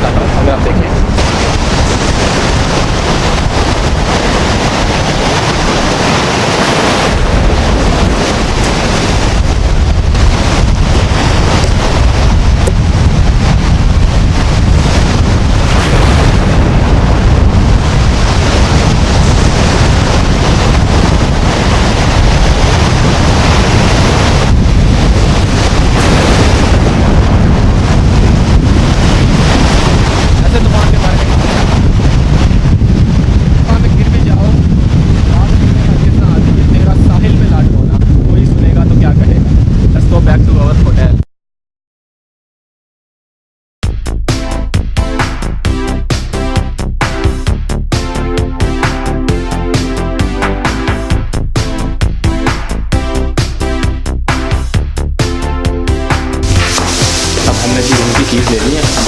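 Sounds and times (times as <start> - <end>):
heavy surf breaking: 0.0 - 37.2, 44.3 - 59.0
wind buffeting microphone: 0.0 - 41.2, 56.4 - 59.0.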